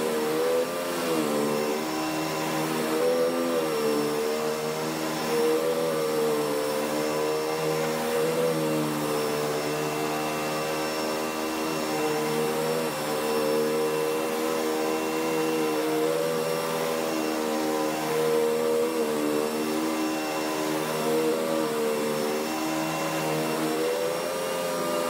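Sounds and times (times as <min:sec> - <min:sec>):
vacuum cleaner running: 0:00.0 - 0:25.0.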